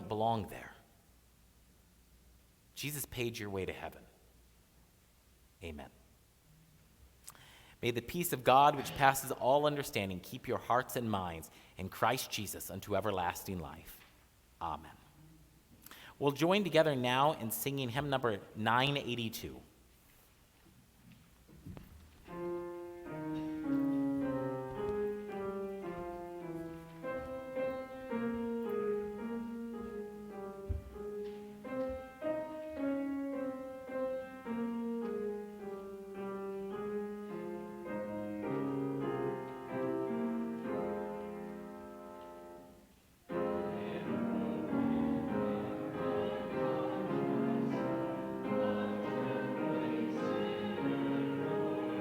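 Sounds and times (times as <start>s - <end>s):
keyboard playing hymn introduction: 0.0s - 0.8s, 15.9s - 19.6s, 22.3s - 52.0s
congregation singing: 8.4s - 10.0s, 43.3s - 52.0s.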